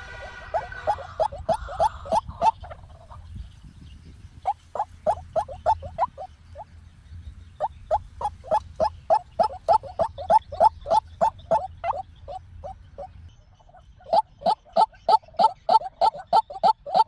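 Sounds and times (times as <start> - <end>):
waterhen calling: 0.0 - 3.3, 4.4 - 6.7, 7.6 - 17.0.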